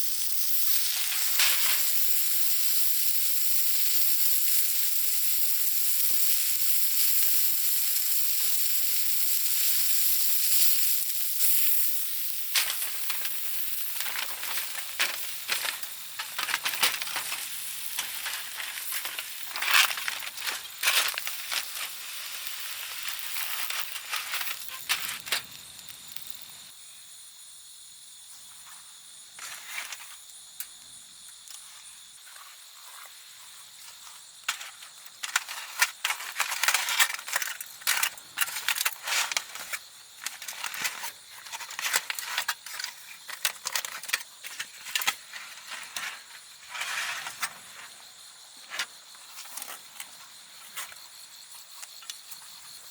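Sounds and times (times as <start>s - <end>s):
clicks and crackles: 0.0s - 26.7s, 34.5s - 47.6s
meat sizzling on a grill: 0.0s - 26.8s, 33.3s - 47.0s.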